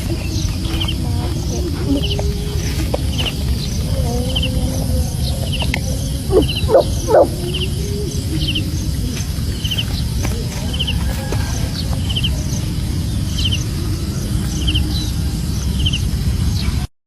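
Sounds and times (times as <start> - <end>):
steady low rumble: 0.0 - 16.9
animal calls rising in pitch: 5.6 - 8.5.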